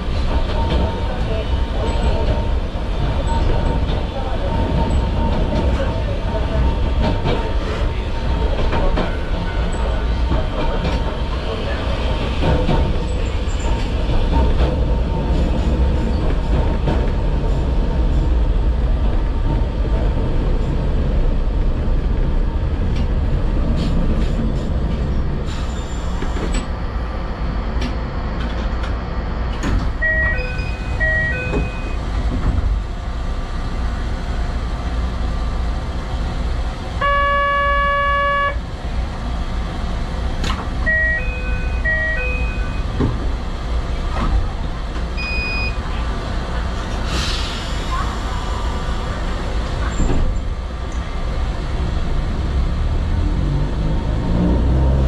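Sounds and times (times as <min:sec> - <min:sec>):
train horn blast: 0:37.0 - 0:38.6
two-tone electronic chime: 0:40.9 - 0:42.8.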